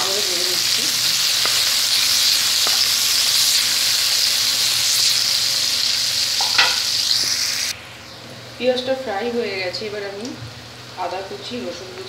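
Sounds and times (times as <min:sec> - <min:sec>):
onions sizzling in hot oil: 0:00.0 - 0:07.8.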